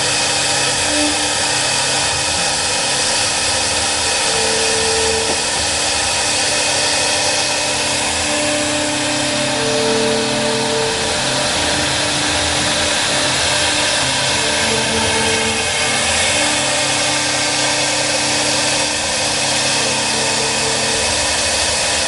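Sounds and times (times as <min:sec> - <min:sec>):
cnc router spindle machining: 0:00.0 - 0:22.0.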